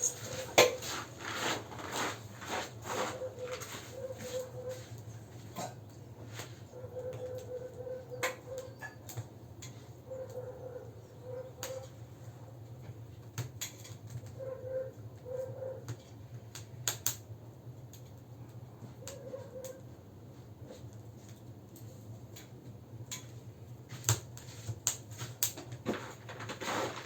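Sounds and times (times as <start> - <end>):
campfire crackling: 15.9 - 26.4.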